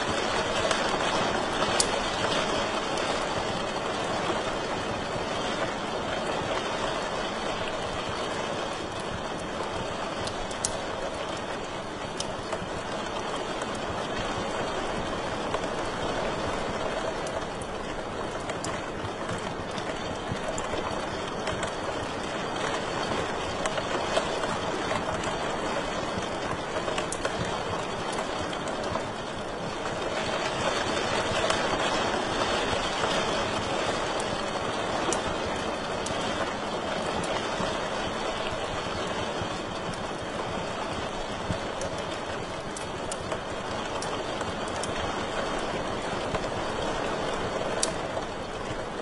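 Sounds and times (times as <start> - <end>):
wood fire crackling: 0.0 - 49.0.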